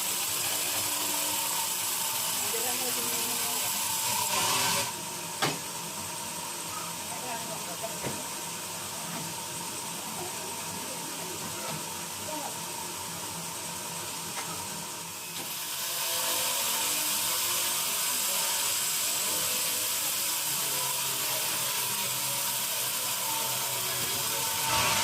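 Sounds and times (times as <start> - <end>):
band saw cutting wood: 0.0 - 5.0, 15.4 - 25.0.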